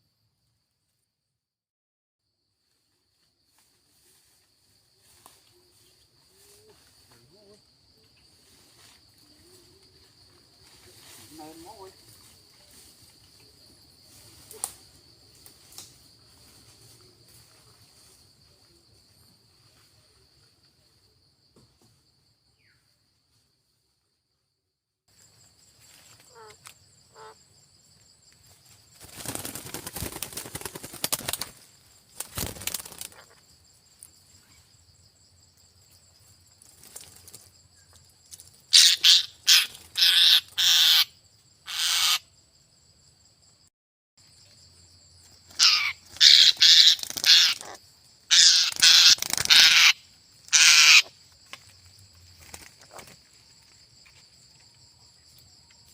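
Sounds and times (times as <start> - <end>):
high insect trill: 2.2 - 55.9
parrot squawking: 38.7 - 41.1, 41.7 - 42.2, 45.6 - 51.1.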